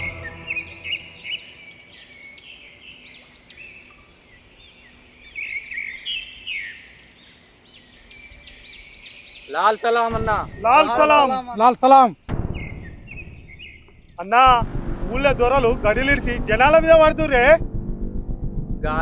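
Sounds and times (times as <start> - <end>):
birds chirping: 0.0 - 14.5.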